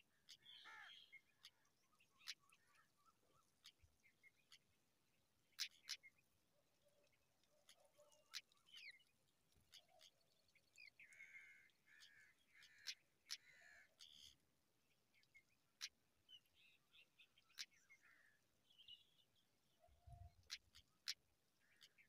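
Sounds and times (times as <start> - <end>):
faint bird calls: 0.0 - 4.6, 10.8 - 14.4, 15.8 - 19.2, 19.8 - 22.0.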